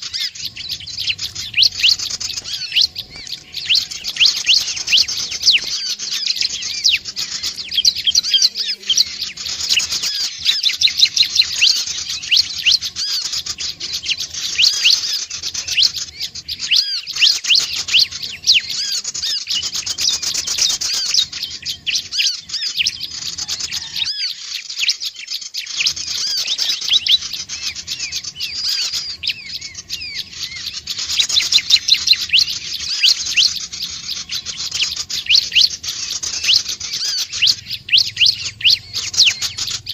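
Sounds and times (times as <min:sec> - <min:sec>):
birds chattering high chirps: 0:00.0 - 0:39.9.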